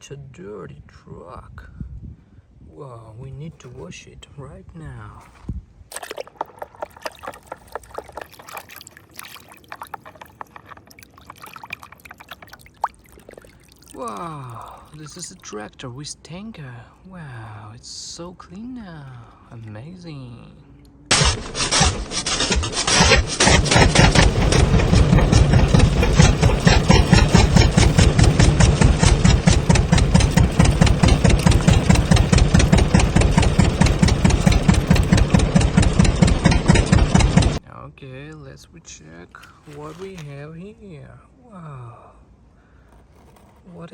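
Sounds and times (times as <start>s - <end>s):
water pouring and splashing: 5.9s - 15.6s, 22.7s - 36.5s
engine running with fast pulsing: 21.1s - 37.6s.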